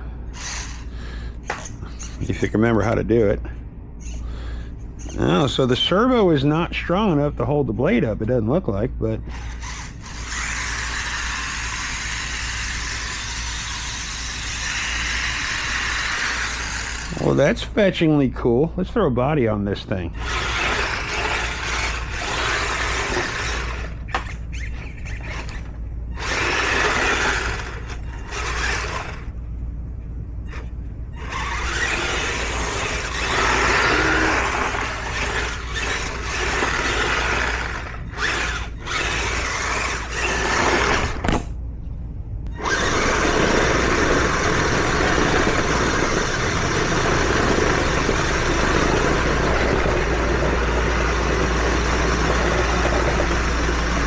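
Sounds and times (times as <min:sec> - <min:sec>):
electric motors whining: 0:00.0 - 0:02.5, 0:09.3 - 0:17.6, 0:20.2 - 0:29.4, 0:30.4 - 0:41.5, 0:42.5 - 0:54.0.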